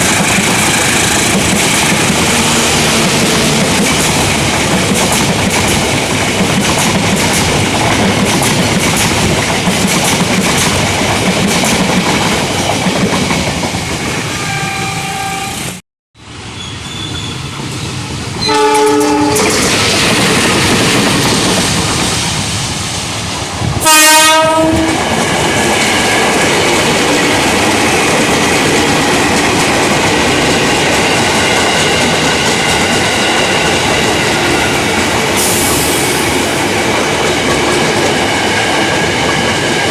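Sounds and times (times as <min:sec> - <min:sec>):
train wheels clattering on rails: 0:00.0 - 0:14.0, 0:17.1 - 0:39.9
train horn: 0:01.9 - 0:04.5, 0:14.0 - 0:15.8, 0:18.4 - 0:19.5, 0:23.8 - 0:25.0.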